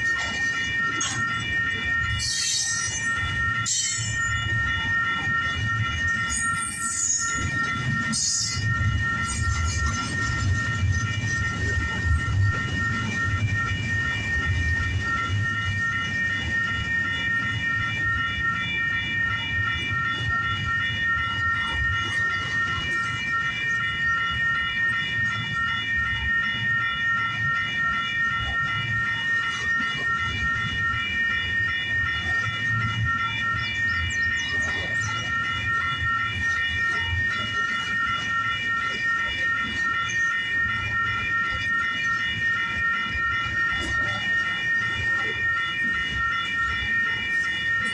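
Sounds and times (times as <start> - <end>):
crossing warning bell ringing: 0.0 - 15.8.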